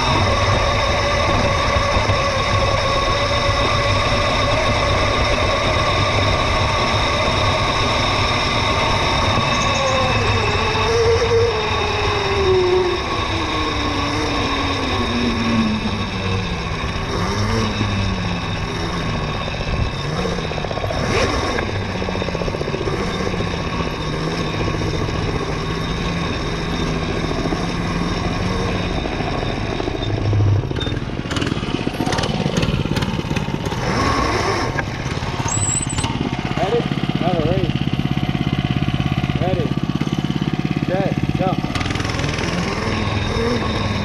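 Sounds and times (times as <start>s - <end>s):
mini bike engine: 0.0s - 44.0s
wind and ground noise: 0.0s - 44.0s.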